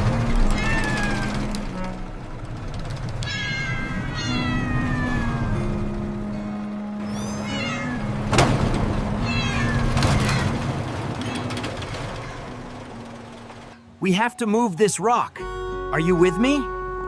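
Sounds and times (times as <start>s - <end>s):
cat meowing: 0.3s - 1.5s, 3.2s - 5.6s, 7.0s - 8.1s, 9.2s - 10.6s, 11.2s - 12.6s.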